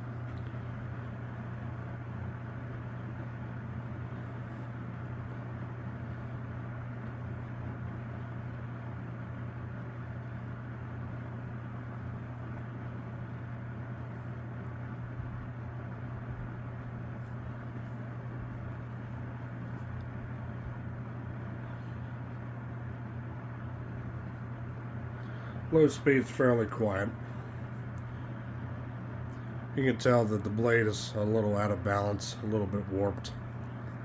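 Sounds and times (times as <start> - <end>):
fan motor hum: 0.0 - 34.0
rush of air from fan: 12.2 - 34.0.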